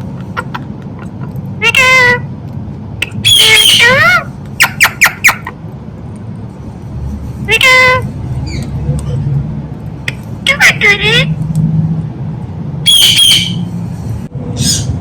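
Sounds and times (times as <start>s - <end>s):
parrot calling and squawking: 0.2s - 2.3s, 3.0s - 5.6s, 10.0s - 11.4s, 12.8s - 13.7s, 14.5s - 15.0s.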